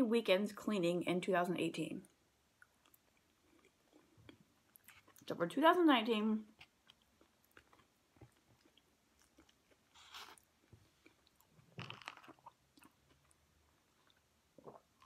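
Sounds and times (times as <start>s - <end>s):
chewing with wet mouth clicks: 2.6s - 5.3s, 6.6s - 10.4s
crunching bite of food: 6.9s - 13.4s.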